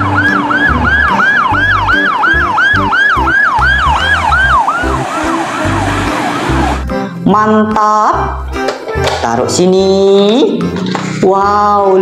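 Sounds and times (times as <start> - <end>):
ambulance siren yelp: 0.0 - 6.9
music with steady bass beat: 0.0 - 12.0.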